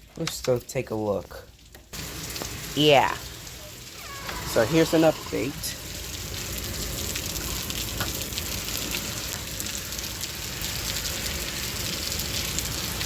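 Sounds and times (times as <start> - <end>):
rain pattering: 0.0 - 13.0.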